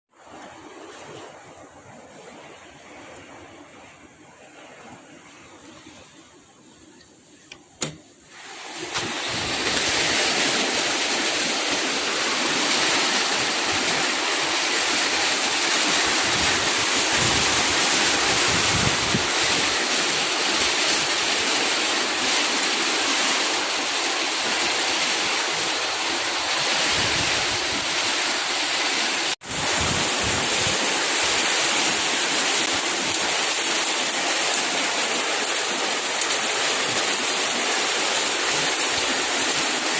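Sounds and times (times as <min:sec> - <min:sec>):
heavy rain pouring: 0:08.3 - 0:39.9.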